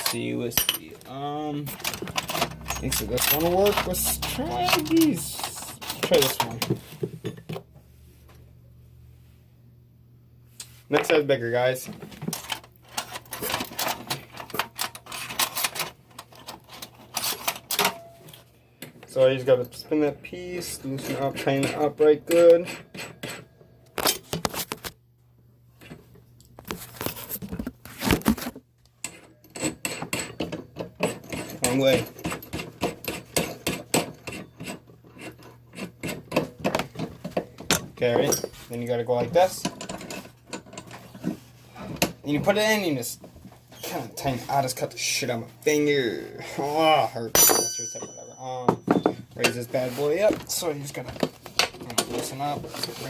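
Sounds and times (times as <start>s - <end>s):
metal parts scraping and clicking: 0.0s - 6.8s, 12.3s - 18.4s, 38.0s - 42.1s
steady low hum: 0.0s - 27.2s
metal drill bits clinking: 47.4s - 49.2s.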